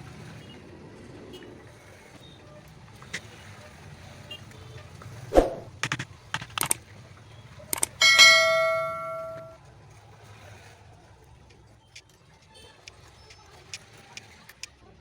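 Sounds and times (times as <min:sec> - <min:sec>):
metal tools knocking and clicking: 0:07.8 - 0:09.5
struck metal ringing: 0:07.8 - 0:09.5.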